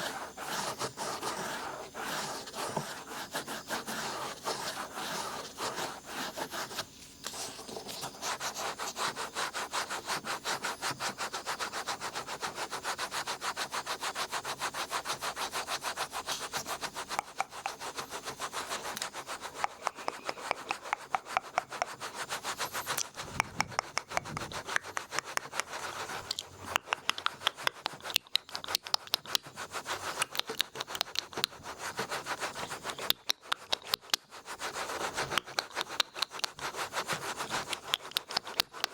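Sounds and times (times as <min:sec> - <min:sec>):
ear pick scraping in ear: 0:17.1 - 0:27.6.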